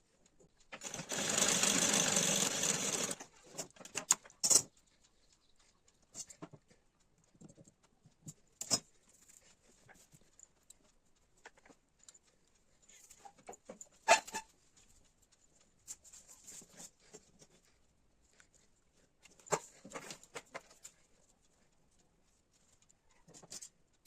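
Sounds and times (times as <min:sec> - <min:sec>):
sewing tools clicking and rustling: 0:00.6 - 0:04.9, 0:07.4 - 0:09.0.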